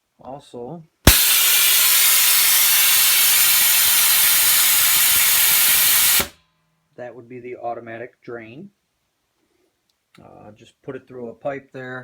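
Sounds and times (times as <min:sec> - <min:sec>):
compressed air hissing: 0:01.1 - 0:06.4
drain valve click: 0:01.1 - 0:06.4.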